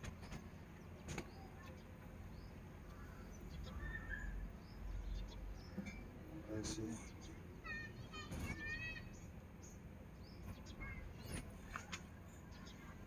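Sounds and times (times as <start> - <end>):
faint bird chirps: 0.1 - 13.0.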